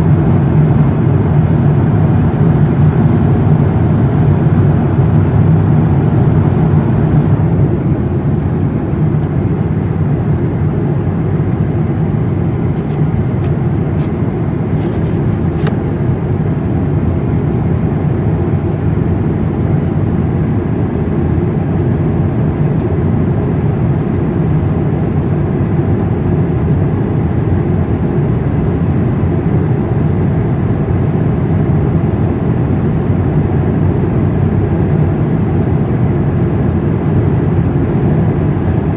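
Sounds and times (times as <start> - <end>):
airliner low rumble: 0.0 - 38.9.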